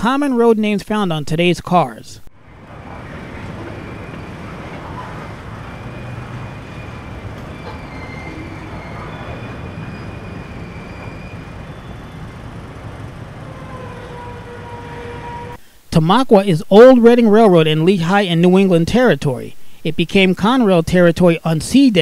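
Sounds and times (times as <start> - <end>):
faint high-pitched squeals: 2.4 - 15.6
freight train rumbling: 2.4 - 15.6.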